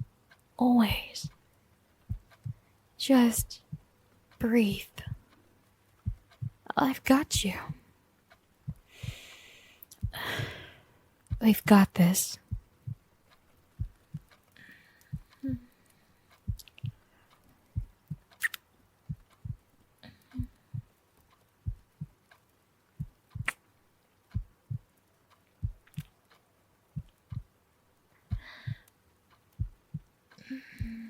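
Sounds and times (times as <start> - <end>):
slow heartbeat thumps: 2.0 - 2.6, 3.6 - 3.9, 5.0 - 5.3, 6.0 - 6.7, 8.6 - 11.7, 12.4 - 13.0, 13.6 - 14.4, 15.0 - 15.7, 16.3 - 17.0, 17.6 - 18.4, 19.0 - 19.7, 20.3 - 21.0, 21.6 - 22.2, 22.9 - 23.6, 24.3 - 25.0, 25.6 - 26.1, 26.9 - 27.6, 28.3 - 28.9, 29.5 - 31.0
faint breaths: 8.7 - 11.1, 14.5 - 17.9, 28.2 - 28.9.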